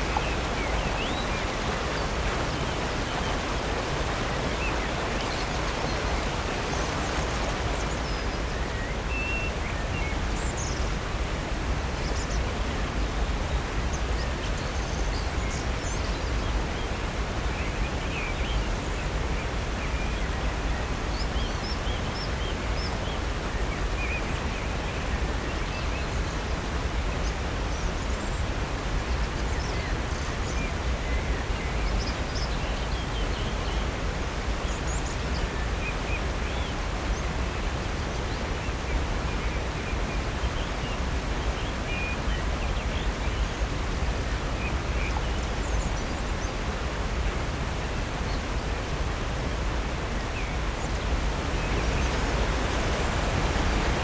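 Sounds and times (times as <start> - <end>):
waterfall rushing: 0.0 - 10.6, 32.4 - 54.0.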